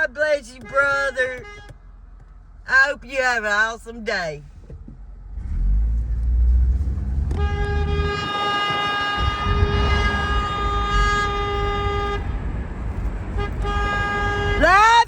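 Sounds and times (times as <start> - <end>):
engine and road rumble: 0.0 - 15.0
vehicle horn: 0.6 - 1.8, 7.2 - 12.4, 13.4 - 15.0.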